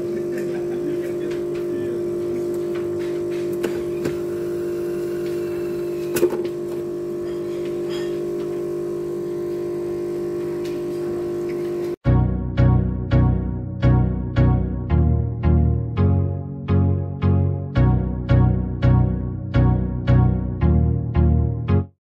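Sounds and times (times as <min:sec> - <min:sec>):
coffee machine humming: 0:00.0 - 0:12.0.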